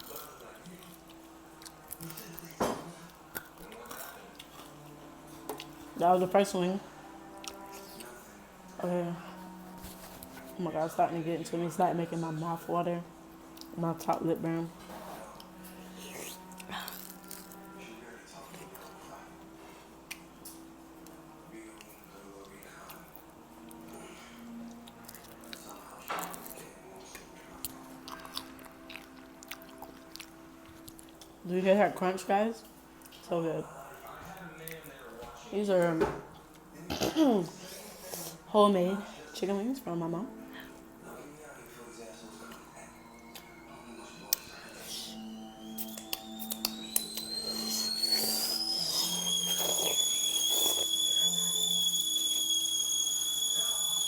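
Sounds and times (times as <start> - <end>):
crunchy chewing of chicken wings: 24.6 - 31.3, 48.0 - 50.9
kettle whistling: 43.1 - 54.0.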